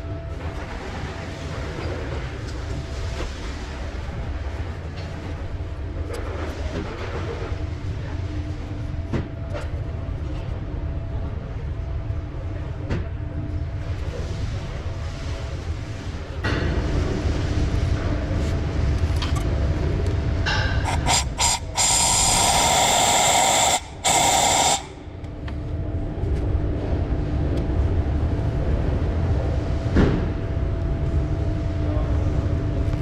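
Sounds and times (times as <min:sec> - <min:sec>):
steady low hum: 0:00.0 - 0:33.0
compressed air gun hissing: 0:20.9 - 0:25.1.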